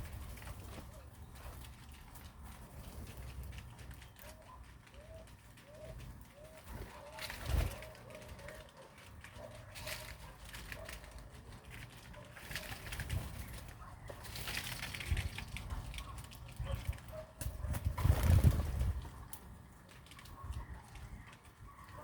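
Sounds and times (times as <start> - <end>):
dove cooing: 4.1 - 14.6.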